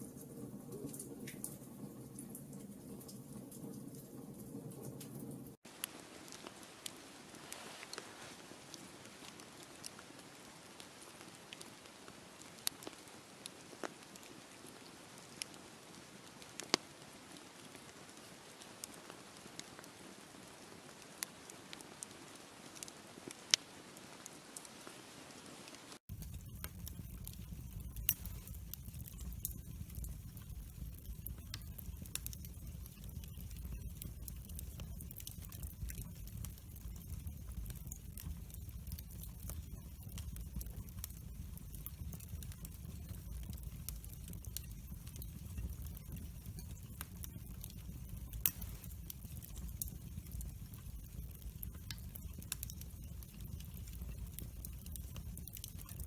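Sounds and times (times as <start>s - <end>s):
burning wood crackling: 0.0s - 24.3s, 26.0s - 56.0s
fire flames rumbling: 26.1s - 56.0s.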